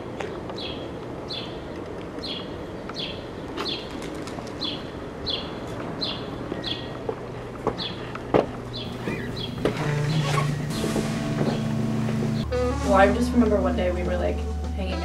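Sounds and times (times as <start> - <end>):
bird chirping: 4.6 - 7.0, 8.7 - 12.5
low background hum: 5.0 - 15.0.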